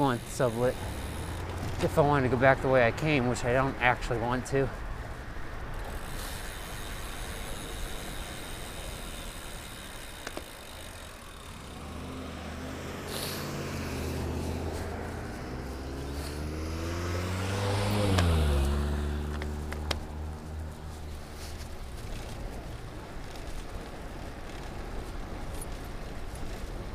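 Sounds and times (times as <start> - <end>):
car passing by: 11.4 - 22.4.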